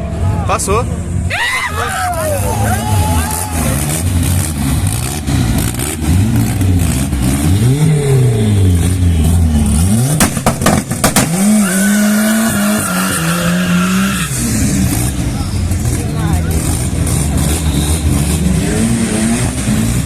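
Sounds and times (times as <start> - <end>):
racing car engine revving: 2.0 - 20.0
sharp cracks: 10.1 - 11.7.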